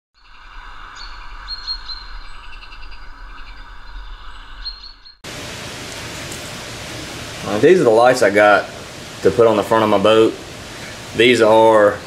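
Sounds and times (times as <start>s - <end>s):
birds chirping: 0.2s - 5.2s
low rumble: 0.2s - 5.2s
background hiss: 0.2s - 12.0s.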